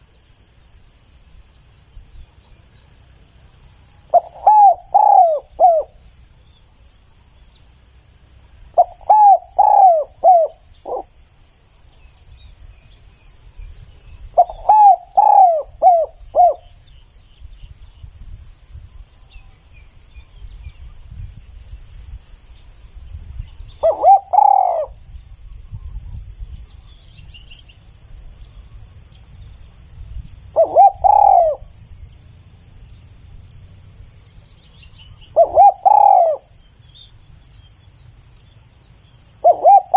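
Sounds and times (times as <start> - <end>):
insects chirping: 0.0 - 39.9
doves cooing: 4.1 - 6.0, 8.8 - 11.1, 14.4 - 16.7, 23.8 - 25.0, 30.6 - 31.8, 35.2 - 36.5, 39.4 - 39.9.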